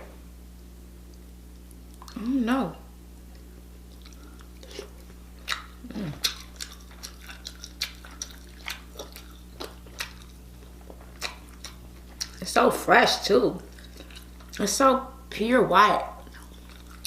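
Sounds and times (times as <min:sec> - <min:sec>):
low steady hum: 0:00.0 - 0:17.0
wet chewing and lip smacks: 0:01.1 - 0:02.2, 0:03.3 - 0:12.5, 0:13.6 - 0:14.7, 0:16.2 - 0:17.0.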